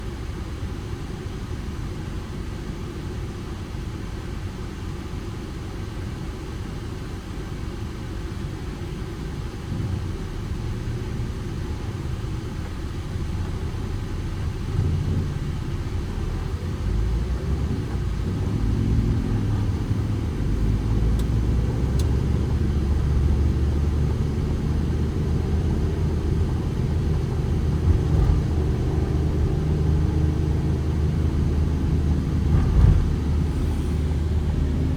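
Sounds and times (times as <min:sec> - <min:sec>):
van engine running: 0:00.0 - 0:34.9
road rumble: 0:07.0 - 0:34.9.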